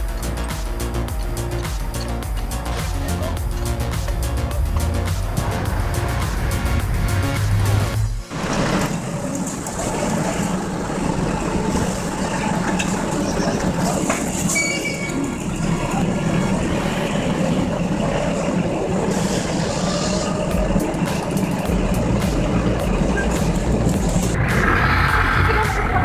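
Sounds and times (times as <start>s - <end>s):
heavy vehicle engine droning: 0.0s - 9.1s.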